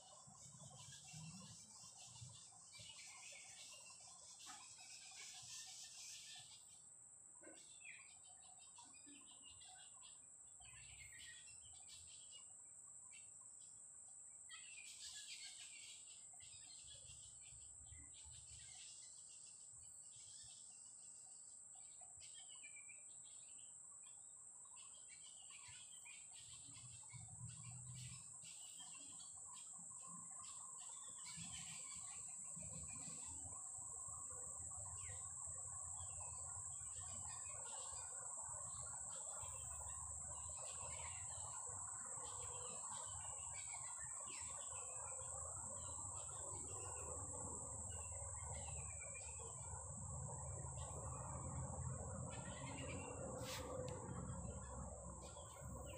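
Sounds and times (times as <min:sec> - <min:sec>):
low chirring insect chorus: 0:00.0 - 0:55.9.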